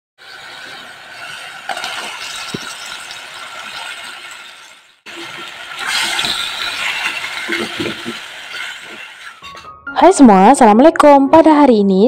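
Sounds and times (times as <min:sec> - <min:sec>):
sauce sizzling in a pot: 0:00.2 - 0:09.6
pot and utensil clinks: 0:06.2 - 0:09.7
background music: 0:09.4 - 0:12.0.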